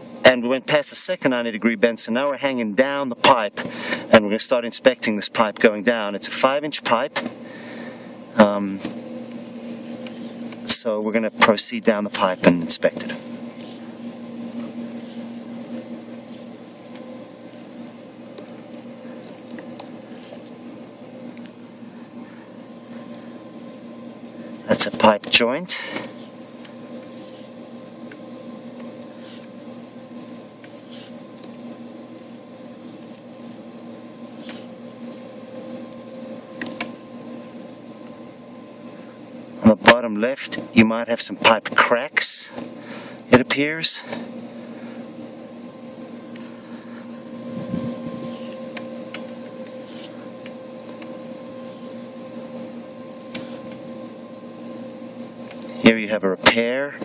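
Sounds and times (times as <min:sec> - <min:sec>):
mechanical hum of equipment: 0:00.0 - 0:57.0
cable scraping in pipe: 0:11.9 - 0:16.7, 0:25.8 - 0:27.6, 0:29.0 - 0:29.7, 0:30.6 - 0:31.6, 0:34.2 - 0:34.8, 0:47.6 - 0:52.2, 0:53.3 - 0:53.7.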